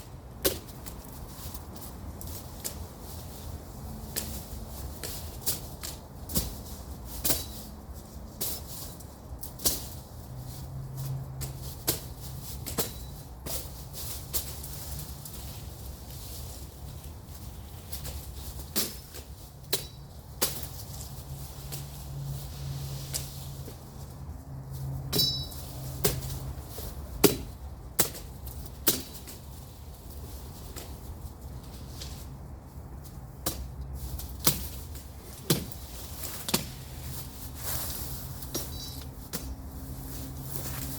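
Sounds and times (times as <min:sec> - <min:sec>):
rustling of cut growth: 0:00.0 - 0:40.9
machete slashing through brush: 0:17.9 - 0:21.0, 0:33.5 - 0:39.6.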